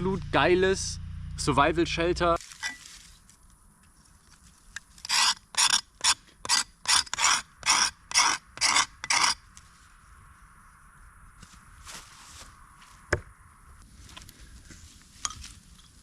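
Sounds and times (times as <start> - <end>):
rasping scrapes: 5.0 - 9.4.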